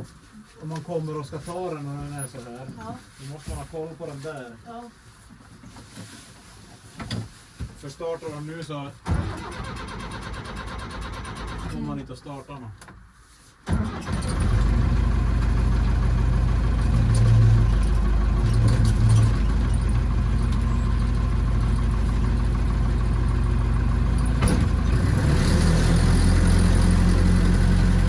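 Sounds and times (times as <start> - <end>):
tractor engine running: 13.7 - 28.0.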